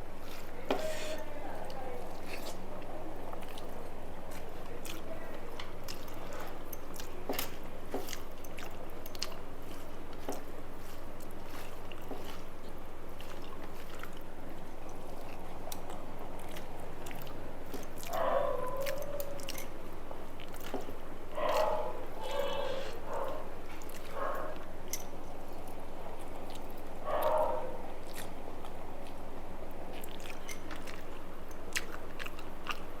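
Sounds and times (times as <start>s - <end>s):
wet chewing of food: 0.0s - 33.0s.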